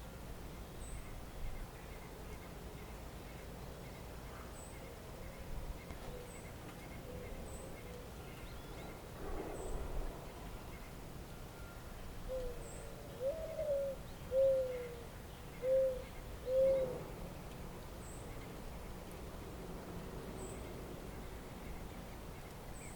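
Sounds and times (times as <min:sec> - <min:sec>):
faint steady hiss: 0:00.0 - 0:22.9
low pitched bird calls: 0:04.7 - 0:19.0.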